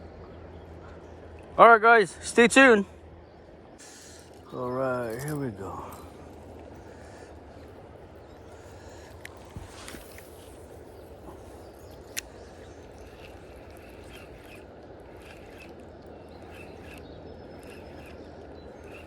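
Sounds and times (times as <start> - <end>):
small bird chirping: 10.0 - 19.0.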